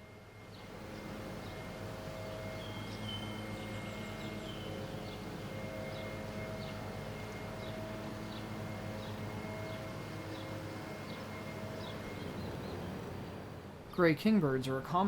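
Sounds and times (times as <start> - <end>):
distant motor hum: 0.0 - 15.0
high bird chirps: 2.6 - 5.3.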